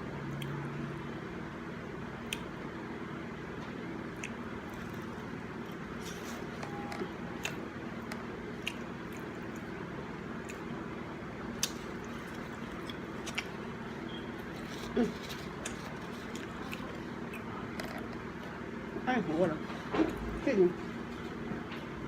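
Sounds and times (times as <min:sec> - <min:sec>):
steady low hum: 0:00.0 - 0:22.0
wet chewing: 0:04.0 - 0:10.8, 0:11.5 - 0:18.6.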